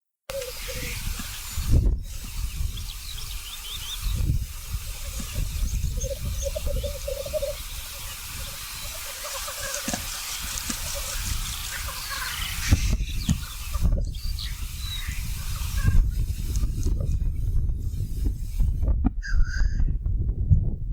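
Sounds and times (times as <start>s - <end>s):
grouse bubbling cooing song: 0.3s - 1.7s, 2.7s - 16.0s
short high bird chirps: 0.3s - 16.2s, 19.2s - 19.9s.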